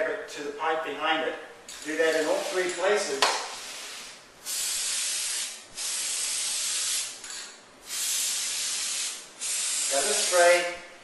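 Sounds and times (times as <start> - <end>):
aerosol can spraying: 3.4 - 7.2, 7.8 - 10.6.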